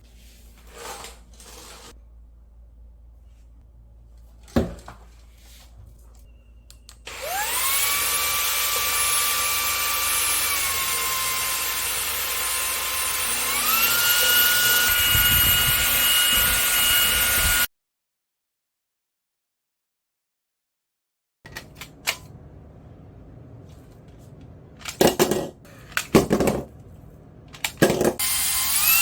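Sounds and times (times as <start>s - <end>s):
vacuum motor whine: 7.1s - 17.7s.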